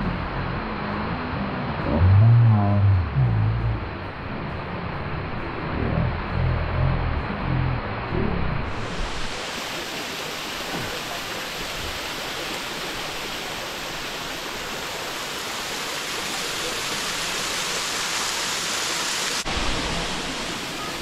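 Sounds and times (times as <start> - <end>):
waterfall rushing into a pool: 8.6 - 21.0.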